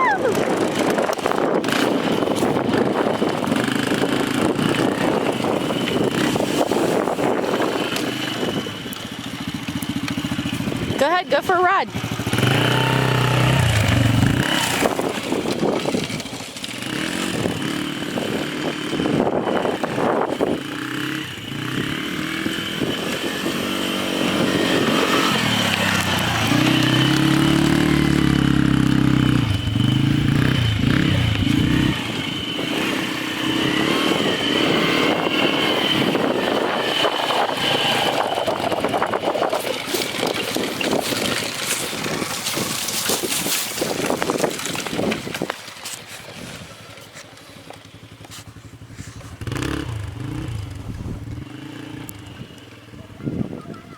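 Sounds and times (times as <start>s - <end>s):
quad engine revving: 0.0s - 45.5s, 48.0s - 53.9s.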